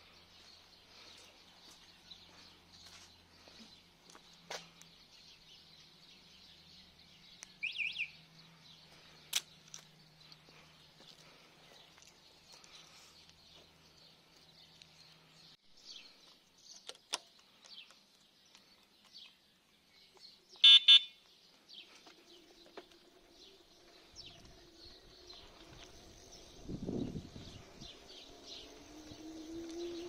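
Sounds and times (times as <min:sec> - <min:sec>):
birds chirping: 0:00.0 - 0:30.0
short electronic beeps: 0:20.6 - 0:21.1.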